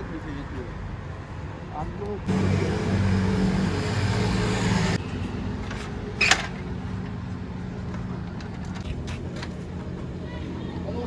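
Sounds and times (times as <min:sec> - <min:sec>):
loud rushing noise: 0:02.3 - 0:05.0
vehicle engine humming: 0:02.3 - 0:10.2.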